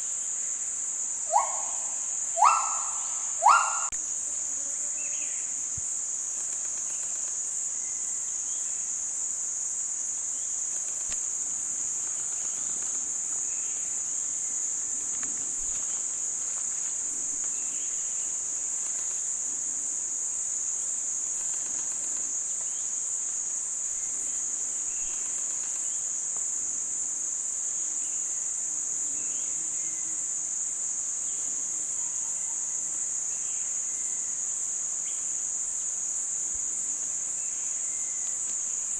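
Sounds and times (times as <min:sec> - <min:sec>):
high-pitched insect drone: 0:00.0 - 0:26.1
faint short calls: 0:01.3 - 0:04.0.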